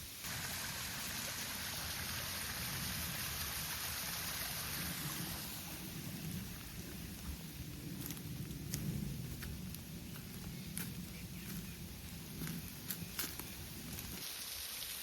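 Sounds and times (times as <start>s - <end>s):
waterfall rushing: 0.2s - 5.8s.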